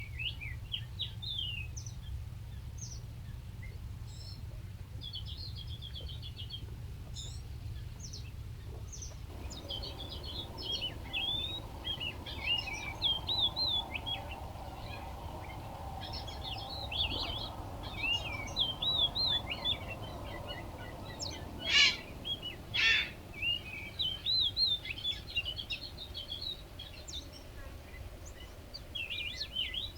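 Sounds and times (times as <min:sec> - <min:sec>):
small birds chirping: 0:07.2 - 0:29.9
harsh bird calls: 0:09.3 - 0:25.7
low steady rumble: 0:09.3 - 0:26.5.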